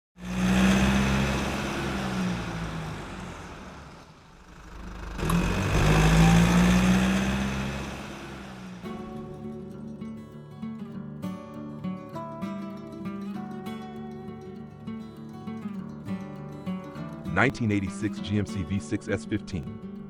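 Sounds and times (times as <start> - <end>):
car engine: 0.2 - 9.4.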